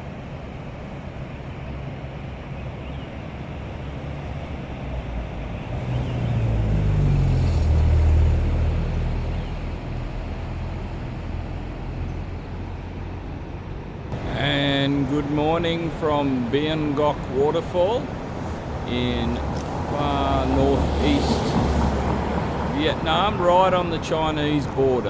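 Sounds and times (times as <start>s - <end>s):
waterfall roaring: 14.1s - 25.0s.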